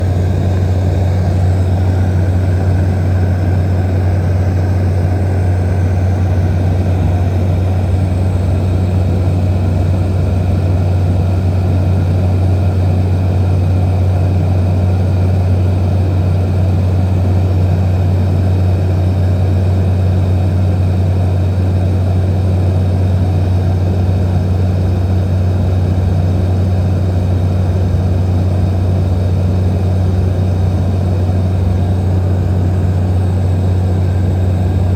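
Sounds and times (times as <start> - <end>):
propeller aircraft engine droning: 0.0 - 34.9.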